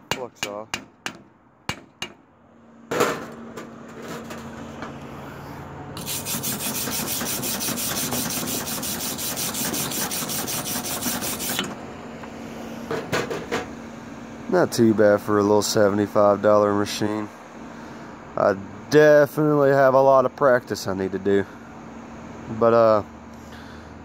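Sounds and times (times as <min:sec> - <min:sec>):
scraping slag off weld: 0:06.0 - 0:11.8.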